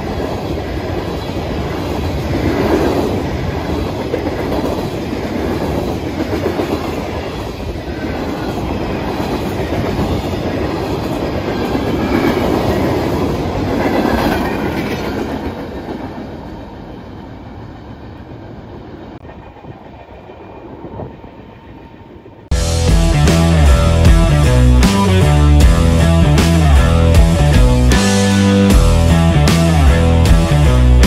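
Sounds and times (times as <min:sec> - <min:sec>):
wheels clacking over rail joints: 0:00.0 - 0:16.7.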